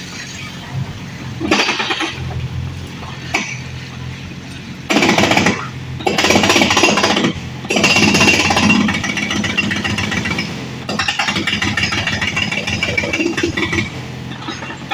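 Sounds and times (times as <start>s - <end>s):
low machine hum: 0.0s - 10.9s
excavator hammering and crunching: 1.4s - 3.7s, 4.4s - 14.9s.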